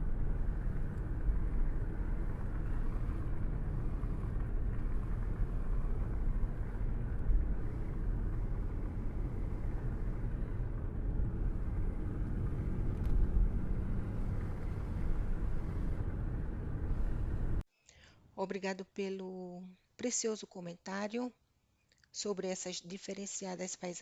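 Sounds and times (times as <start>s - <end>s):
car road noise rumble: 0.0s - 17.6s.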